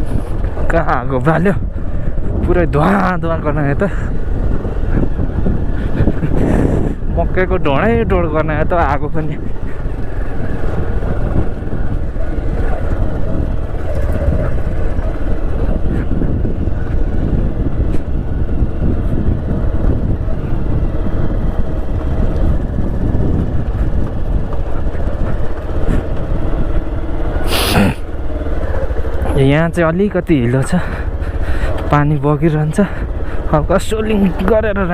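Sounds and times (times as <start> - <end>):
motorcycle engine running: 0.0 - 34.9
wind rumbling on microphone: 0.0 - 34.9
loud rush of noise: 9.4 - 29.4.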